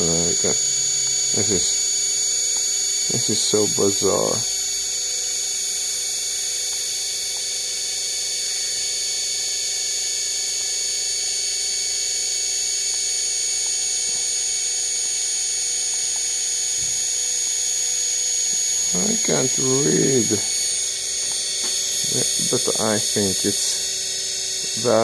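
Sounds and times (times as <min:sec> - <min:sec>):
washing machine motor whining: 0:00.0 - 0:06.8, 0:17.8 - 0:25.0.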